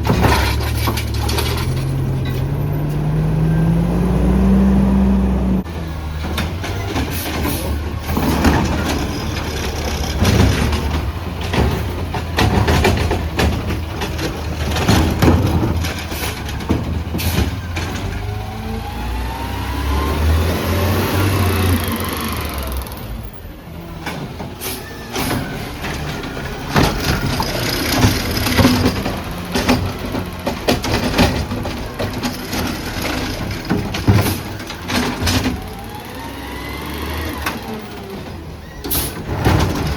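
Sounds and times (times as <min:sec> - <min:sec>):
knocks and clatter: 0:00.0 - 0:02.6, 0:05.7 - 0:18.5, 0:24.0 - 0:35.8, 0:37.4 - 0:39.9
diesel engine running: 0:00.0 - 0:23.7.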